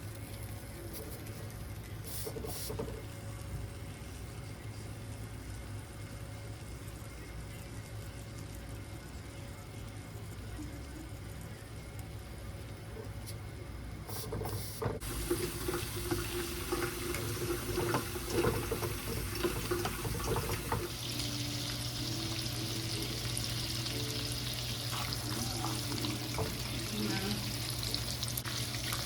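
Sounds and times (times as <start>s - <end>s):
low steady hum: 0.0s - 29.0s
water running from a tap: 15.0s - 29.0s.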